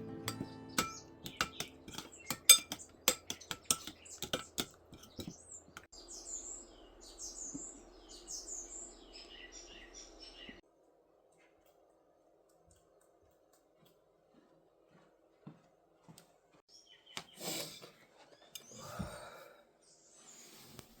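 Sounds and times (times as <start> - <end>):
birds chirping: 0.0 - 10.6, 16.7 - 20.8
sharp clinks and taps: 0.3 - 5.9.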